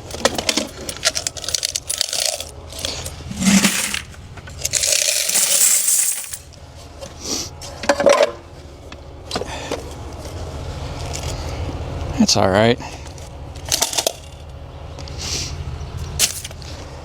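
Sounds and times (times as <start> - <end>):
coins clinking and jingling: 1.4 - 6.5
coins pouring into bucket: 1.4 - 6.5.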